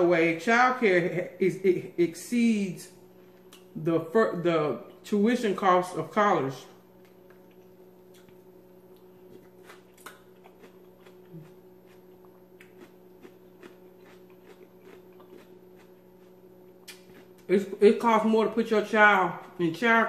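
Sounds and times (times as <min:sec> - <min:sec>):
faint hum: 0:00.0 - 0:20.0
person chewing food: 0:06.9 - 0:17.5, 0:19.2 - 0:19.8
wet mouth smacks: 0:07.0 - 0:08.4, 0:09.0 - 0:11.6, 0:16.8 - 0:17.5.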